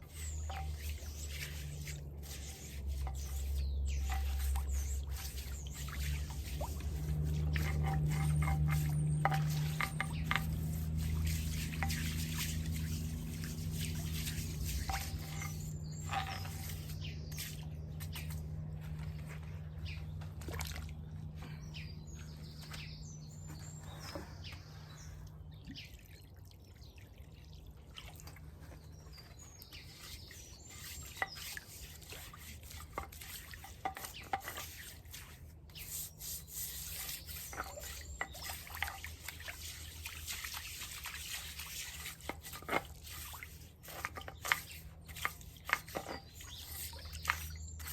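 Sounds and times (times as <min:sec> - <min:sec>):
water dripping and trickling: 0:00.0 - 0:19.4, 0:20.1 - 0:21.6, 0:25.1 - 0:47.9
bird chirps: 0:21.4 - 0:26.0.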